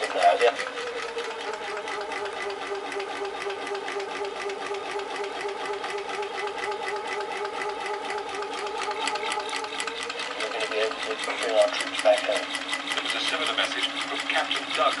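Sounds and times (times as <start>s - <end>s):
small engine fast mechanical rhythm: 0.0s - 15.0s.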